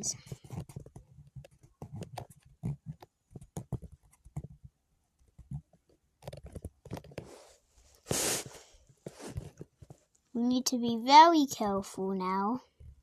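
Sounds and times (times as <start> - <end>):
soft tapping and clicking: 0.1 - 7.3.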